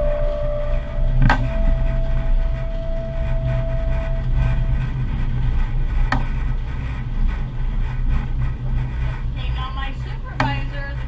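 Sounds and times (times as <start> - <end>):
motor whine: 0.0 - 6.2
streetcar rumble: 0.0 - 11.0.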